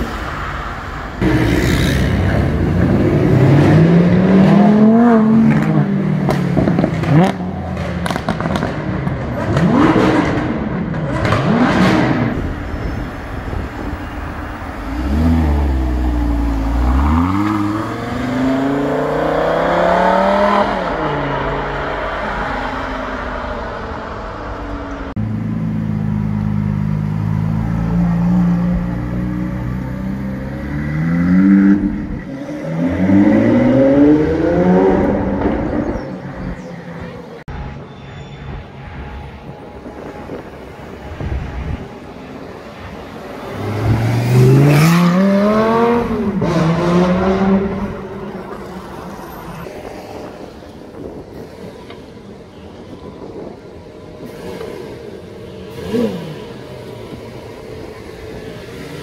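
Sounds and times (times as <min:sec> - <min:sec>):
supercar engine and exhaust: 0:00.6 - 0:38.4.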